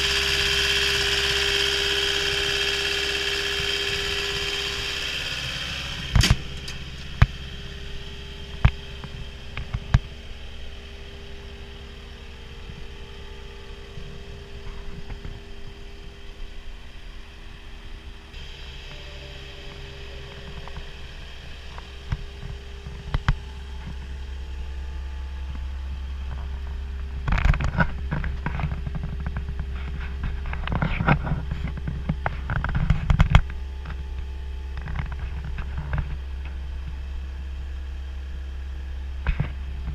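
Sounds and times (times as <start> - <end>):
diesel engine running: 0.0 - 39.9
metallic clanking and rattling: 3.6 - 7.8.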